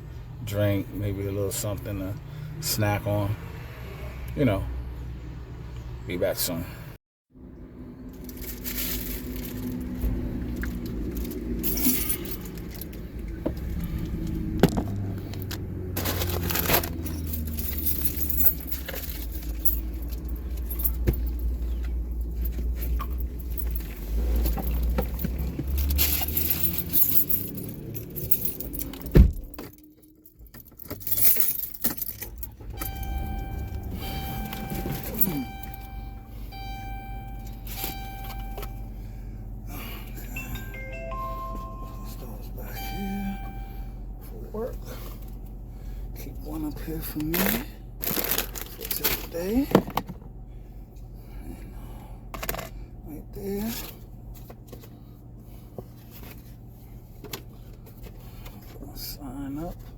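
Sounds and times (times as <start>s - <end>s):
car engine running: 8.2s - 29.5s, 30.5s - 58.9s
keys jangling: 10.8s - 13.0s, 15.3s - 38.9s
chime of steady tones: 32.8s - 39.2s, 40.3s - 44.1s.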